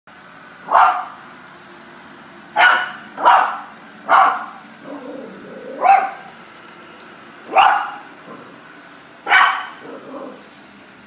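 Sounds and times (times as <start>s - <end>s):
puppy yapping: 0.7s - 1.2s, 2.6s - 6.3s, 7.5s - 8.5s, 9.2s - 10.5s.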